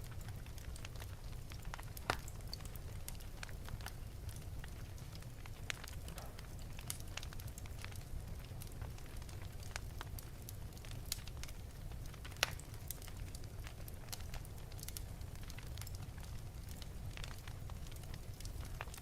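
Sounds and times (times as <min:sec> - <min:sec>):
low rumble of flames: 0:00.0 - 0:19.0
wood fire crackling and popping: 0:00.0 - 0:19.0.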